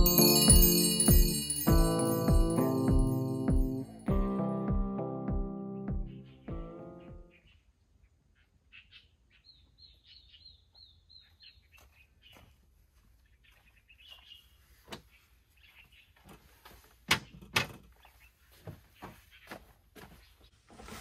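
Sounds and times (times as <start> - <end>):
small birds chirping: 5.8 - 20.7.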